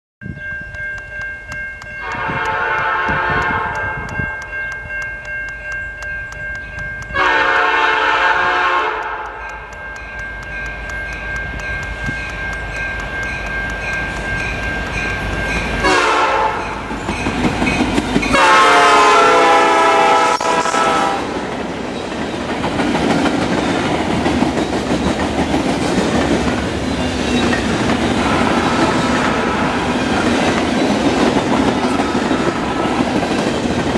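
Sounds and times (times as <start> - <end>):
train wheels clacking on rails: 0.7 - 33.9
locomotive horn: 2.0 - 4.2, 7.2 - 9.4, 15.8 - 16.8, 18.3 - 21.4, 28.2 - 30.0.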